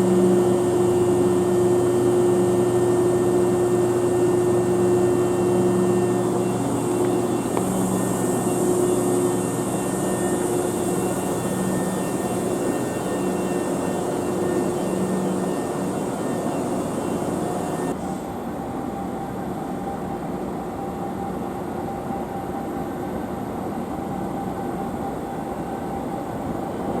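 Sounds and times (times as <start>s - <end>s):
train rumbling and humming: 0.0s - 18.6s.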